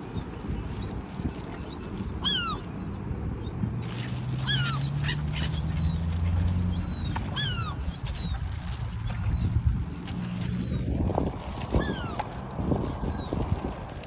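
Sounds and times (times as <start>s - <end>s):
low engine-like hum: 0.1s - 13.9s
birds calling: 0.8s - 9.6s.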